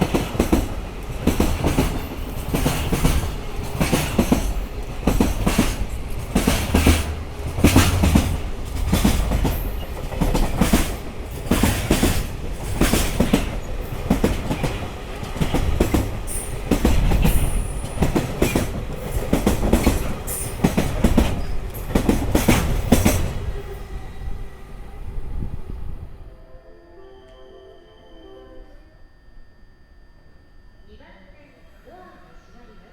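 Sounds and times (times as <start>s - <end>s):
train wheels clacking over rail joints: 0.0s - 23.4s.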